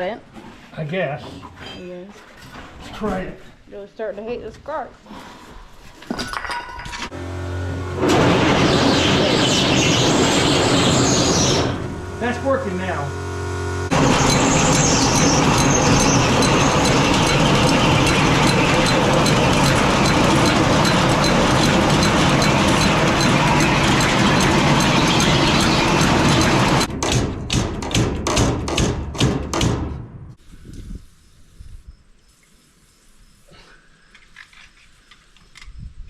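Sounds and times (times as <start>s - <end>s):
machine clatter and hum: 6.4s - 30.1s.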